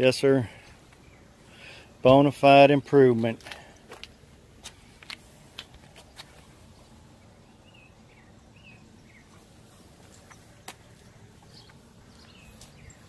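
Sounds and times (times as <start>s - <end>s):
bird chirping: 0.6s - 1.8s, 6.0s - 13.0s.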